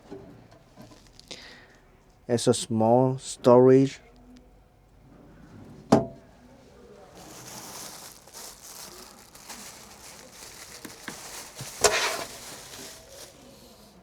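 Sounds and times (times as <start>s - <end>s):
rustling and handling noises: 0.1s - 2.2s, 5.1s - 14.0s.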